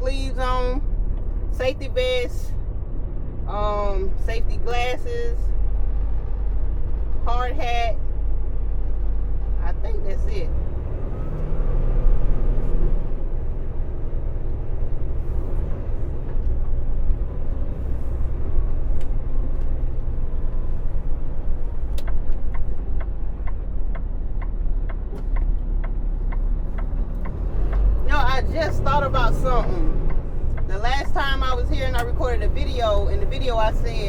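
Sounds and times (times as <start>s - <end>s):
truck engine and road rumble: 0.0s - 34.0s
regular ticking: 21.3s - 34.0s.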